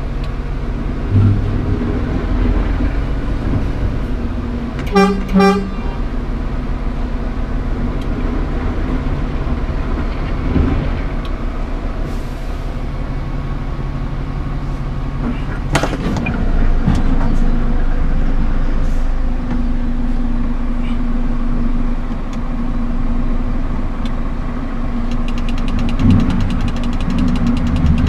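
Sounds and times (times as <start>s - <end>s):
truck diesel engine running: 0.0s - 28.0s
short horn toot: 4.9s - 6.0s.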